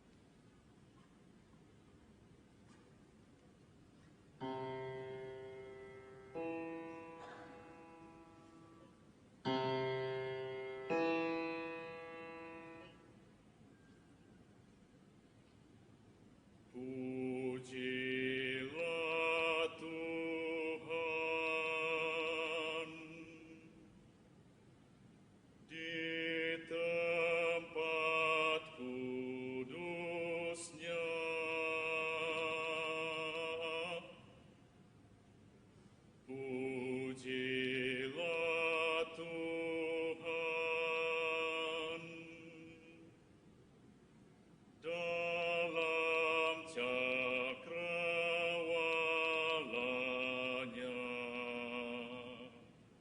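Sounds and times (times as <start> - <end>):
voices singing sustained notes: 4.4 - 13.2, 16.8 - 23.8, 25.7 - 34.4, 36.3 - 43.2, 44.8 - 52.7.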